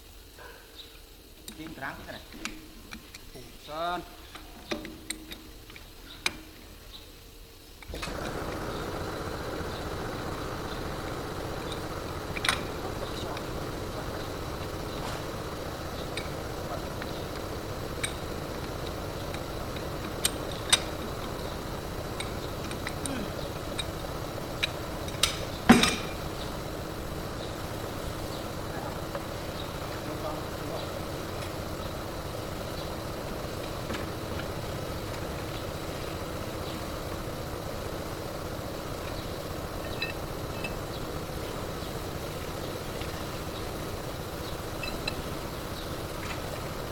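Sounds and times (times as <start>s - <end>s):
steady background noise: 0.0s - 46.9s
engine idling: 7.8s - 46.9s.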